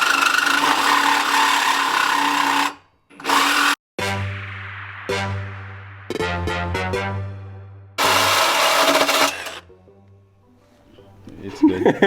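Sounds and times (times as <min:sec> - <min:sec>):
power saw cutting steel pipe: 0:00.0 - 0:03.8, 0:08.0 - 0:09.6.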